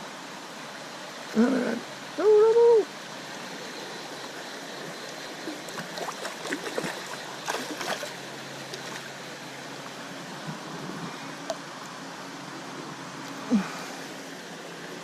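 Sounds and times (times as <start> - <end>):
creek water running: 0.0 - 15.0
small splashes and clicks: 5.7 - 9.1.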